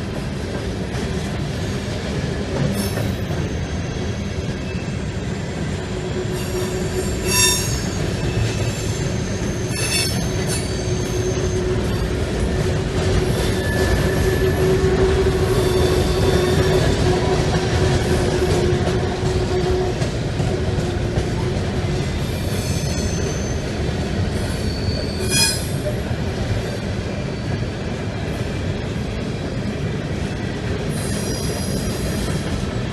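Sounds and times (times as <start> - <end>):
train cars rumbling on rails: 0.0 - 32.9
high-pitched wheel squeals: 6.3 - 12.1, 13.2 - 14.8, 15.5 - 17.0, 22.2 - 23.6, 24.4 - 25.9.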